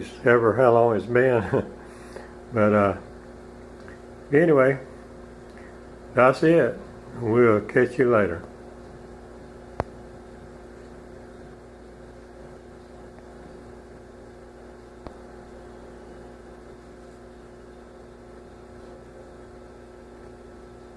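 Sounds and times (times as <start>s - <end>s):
steady low tonal hum: 0.0s - 20.9s.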